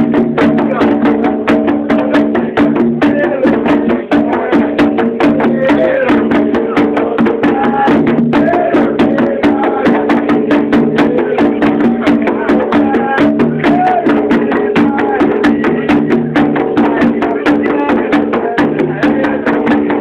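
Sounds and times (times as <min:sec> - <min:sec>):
fast percussion strikes: 0:00.0 - 0:20.0
voices singing: 0:00.0 - 0:20.0.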